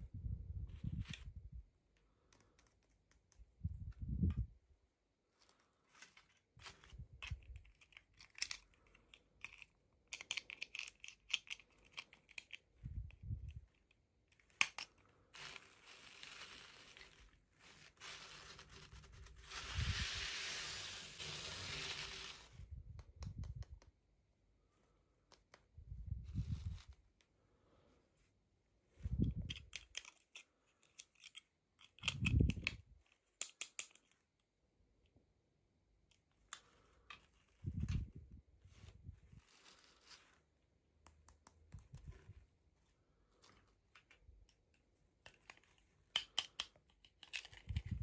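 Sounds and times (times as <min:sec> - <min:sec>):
toy packaging rustling and tearing: 0:05.4 - 0:12.8, 0:13.6 - 0:22.6, 0:29.4 - 0:32.3, 0:45.2 - 0:48.0.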